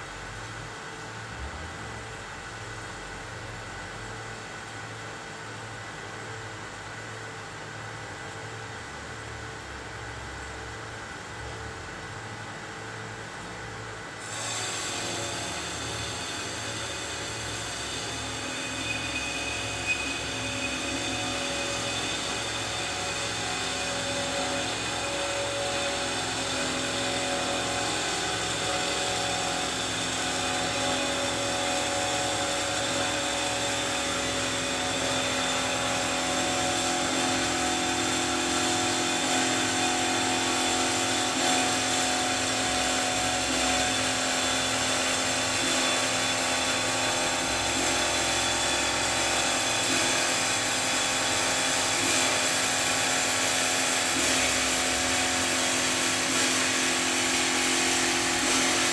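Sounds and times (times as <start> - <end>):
metal-cutting band saw whining: 14.2 - 58.9.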